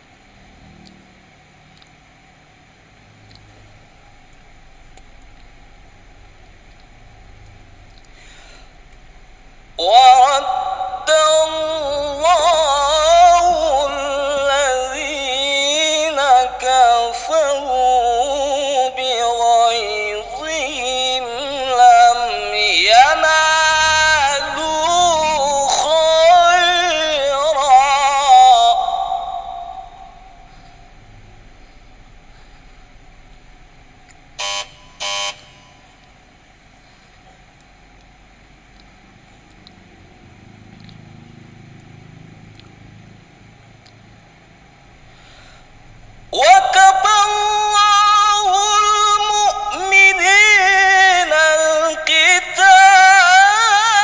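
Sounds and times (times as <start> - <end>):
faint low rumble: 0.0 - 54.0
man reciting melodically: 3.7 - 34.8, 45.1 - 54.0.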